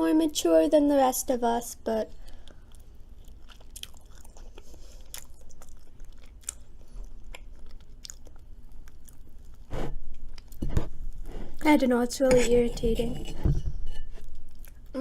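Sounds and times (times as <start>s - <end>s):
person chewing food: 2.1s - 11.6s, 14.1s - 15.0s.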